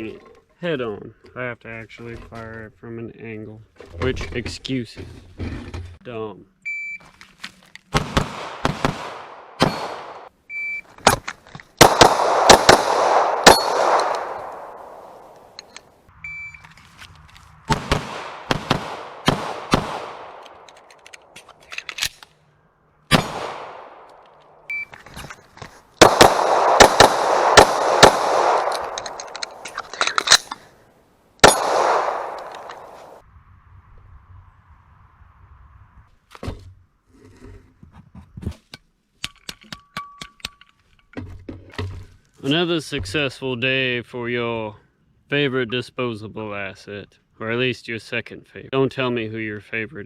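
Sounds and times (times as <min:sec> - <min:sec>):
handgun shots: 0:08.0 - 0:10.3, 0:11.8 - 0:15.6, 0:26.0 - 0:29.6, 0:31.4 - 0:33.2.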